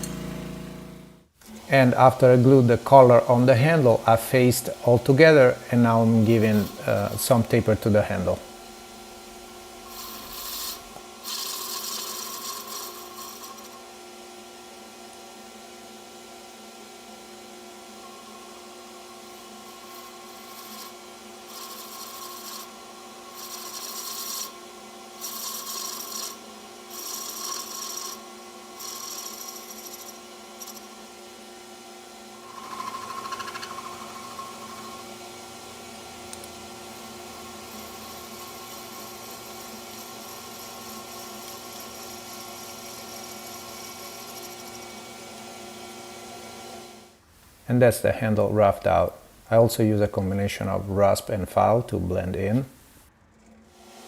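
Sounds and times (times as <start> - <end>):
wood lathe humming: 0.0 - 47.2
turning tool scraping wood: 5.8 - 7.6, 9.8 - 13.9, 19.3 - 24.6, 25.2 - 28.2, 28.8 - 31.0, 32.4 - 45.4.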